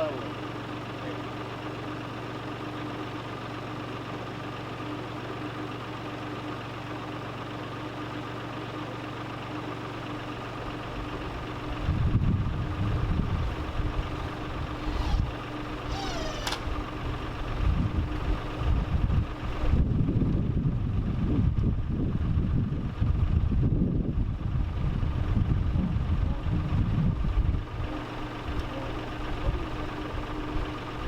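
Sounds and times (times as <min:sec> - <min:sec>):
engine idling: 0:00.0 - 0:31.0
deep rumbling buffeting microphone: 0:10.8 - 0:31.0
short falling squeak: 0:15.9 - 0:16.7.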